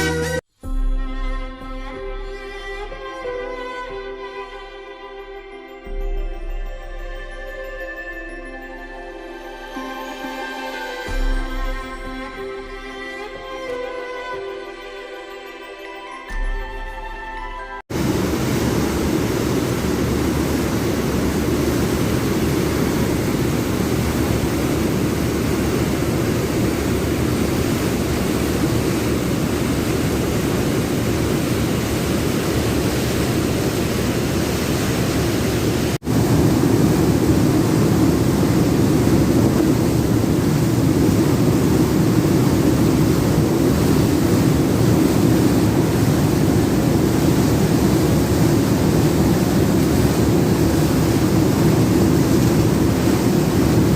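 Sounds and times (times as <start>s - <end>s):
churning water: 17.9s - 53.9s
waterjet engines roaring: 17.9s - 53.9s.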